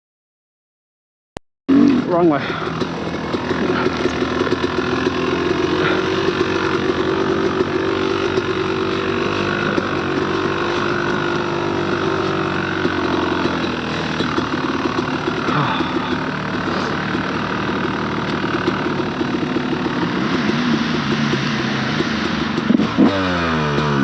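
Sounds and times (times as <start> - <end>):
dirt bike engine at low revs: 1.7 - 24.0.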